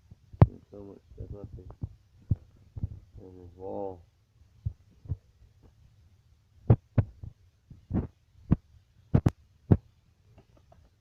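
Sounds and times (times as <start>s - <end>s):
sharp thumps and knocks: 0.1s - 0.6s, 1.2s - 3.2s, 6.7s - 11.0s.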